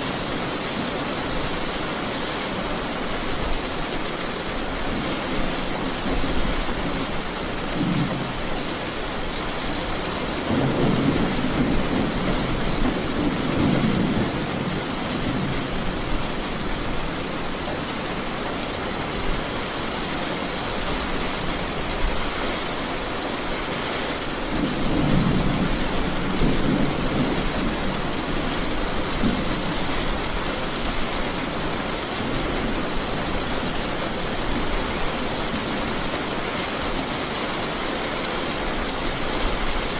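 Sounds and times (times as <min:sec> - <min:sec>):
steady rain: 0:00.0 - 0:39.9
rolling thunder: 0:10.4 - 0:16.0.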